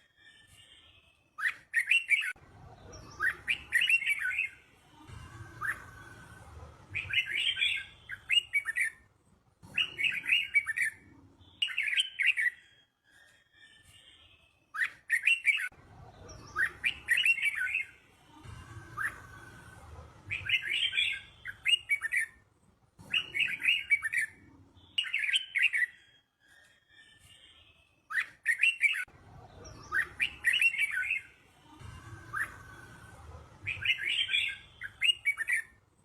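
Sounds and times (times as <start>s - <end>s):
bird singing warbled phrases: 1.4s - 4.6s, 6.9s - 9.0s, 9.8s - 12.8s, 14.7s - 18.0s, 20.3s - 22.4s, 23.1s - 26.2s, 28.1s - 32.9s, 33.6s - 35.8s.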